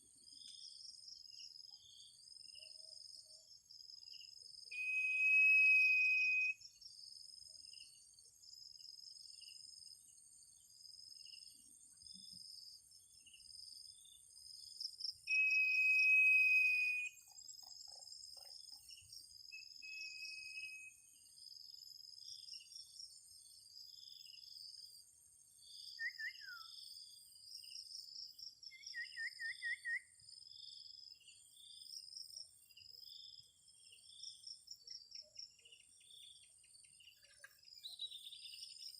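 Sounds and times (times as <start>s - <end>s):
whistled bird notes: 4.7s - 6.8s, 15.1s - 17.6s, 19.5s - 21.1s, 25.9s - 26.8s, 28.7s - 30.2s.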